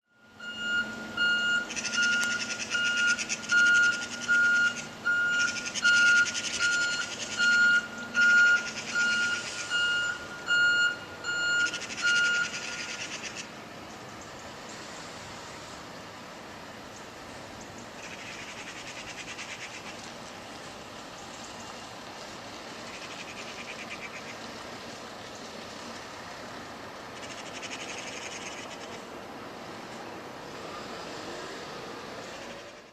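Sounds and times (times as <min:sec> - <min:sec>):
truck reversing alarm beeping: 0:00.1 - 0:13.2
truck engine running: 0:00.2 - 0:31.0.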